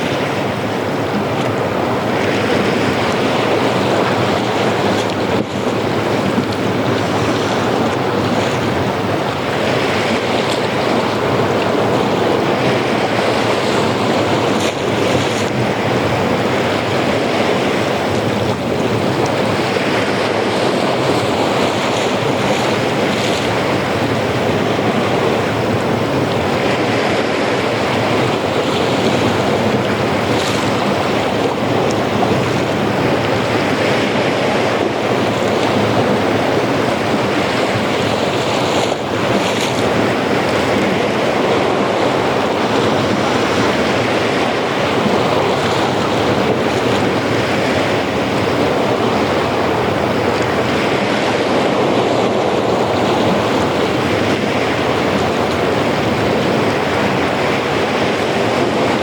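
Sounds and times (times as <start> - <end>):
ocean surf washing onto beach: 0.0 - 59.0
wind on microphone: 0.0 - 59.0.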